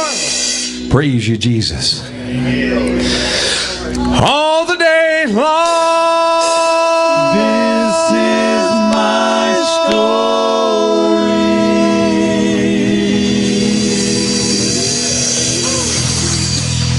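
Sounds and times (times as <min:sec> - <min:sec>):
lower voice or instrument line: 0:04.2 - 0:16.7.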